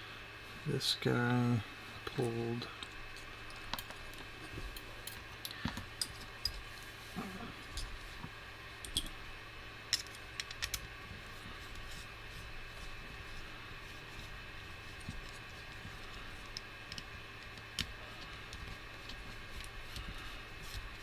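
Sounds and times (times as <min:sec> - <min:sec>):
steady low hum: 0:00.0 - 0:21.0
tools clicking and tapping: 0:08.8 - 0:09.2, 0:09.9 - 0:10.8.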